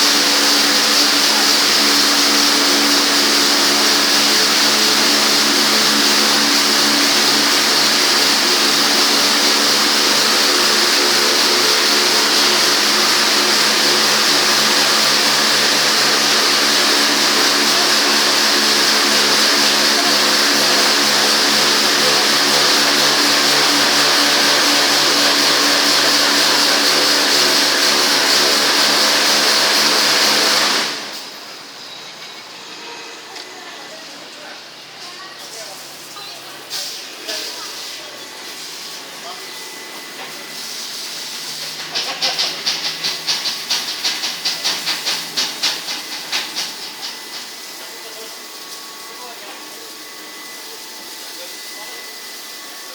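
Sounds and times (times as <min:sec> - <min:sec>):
high-pressure water spray hissing: 0:00.0 - 0:31.4, 0:35.2 - 0:52.9
pump motor humming: 0:00.0 - 0:31.8, 0:37.0 - 0:52.9
water spray hissing: 0:35.6 - 0:39.4, 0:40.2 - 0:49.2.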